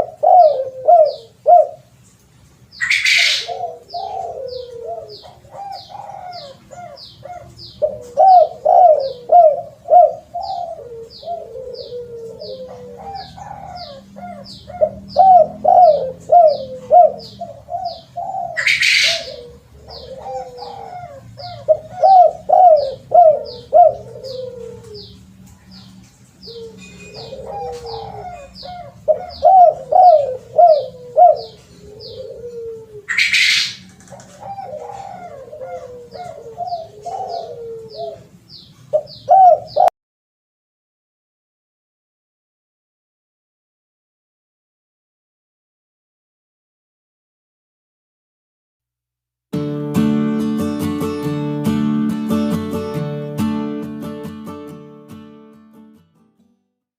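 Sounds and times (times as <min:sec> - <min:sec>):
doves cooing: 0:00.0 - 0:02.0, 0:02.8 - 0:25.3, 0:26.4 - 0:39.9
small bird chirping: 0:02.2 - 0:07.9.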